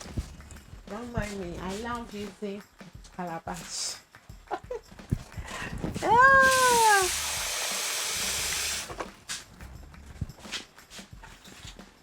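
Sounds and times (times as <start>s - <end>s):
steady hiss: 6.5s - 8.9s.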